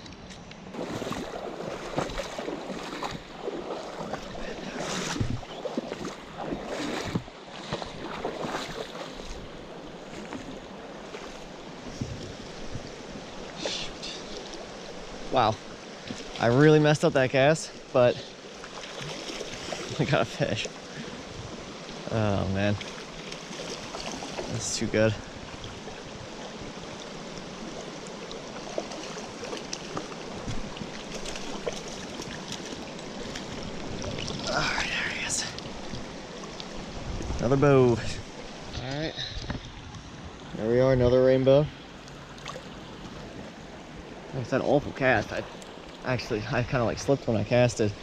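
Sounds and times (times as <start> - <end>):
mountain stream running: 0.1 - 48.0
small splashes: 0.7 - 11.5, 17.7 - 37.4, 42.0 - 43.1.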